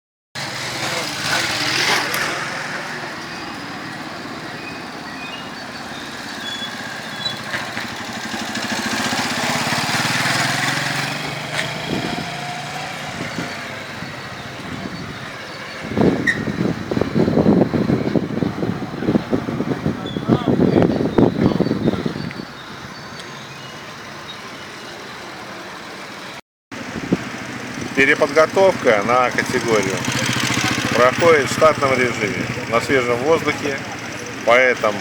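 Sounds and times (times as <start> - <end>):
motorcycle engines running: 0.4 - 23.3, 26.8 - 35.0
choppy loud engine sound: 7.1 - 20.8, 26.8 - 35.0.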